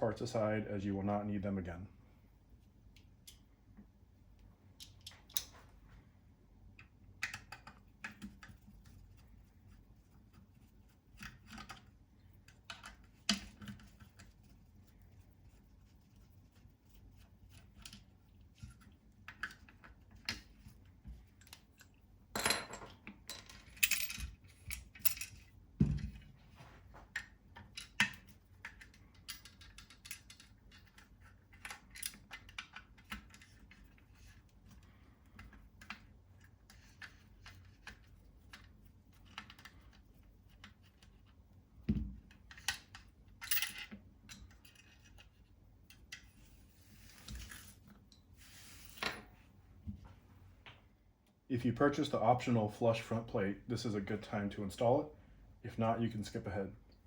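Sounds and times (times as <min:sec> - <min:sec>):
metal parts clicking and clinking: 0:22.4 - 0:25.5, 0:27.7 - 0:33.4, 0:42.5 - 0:45.2.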